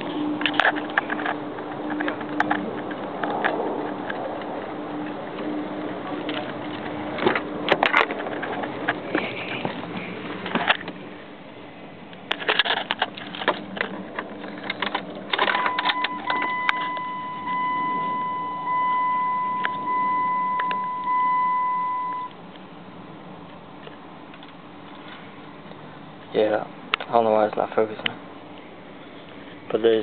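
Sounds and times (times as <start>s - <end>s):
dashboard warning chime: 15.4s - 22.4s.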